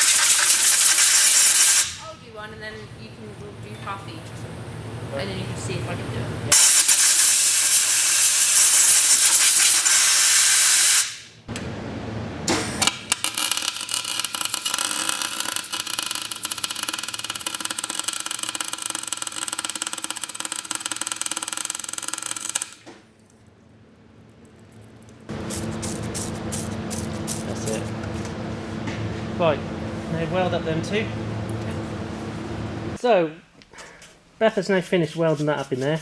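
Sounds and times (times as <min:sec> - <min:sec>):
welder arc crackling and hissing: 0:00.0 - 0:02.6, 0:04.1 - 0:11.4, 0:12.8 - 0:22.8, 0:25.3 - 0:28.1.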